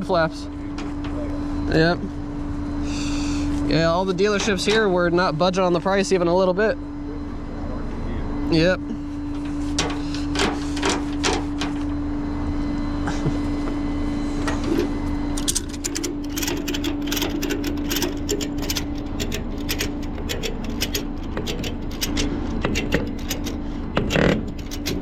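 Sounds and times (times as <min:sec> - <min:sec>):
truck engine whining: 0:13.7 - 0:25.0
quick uneven clicks and rattles: 0:15.9 - 0:25.0.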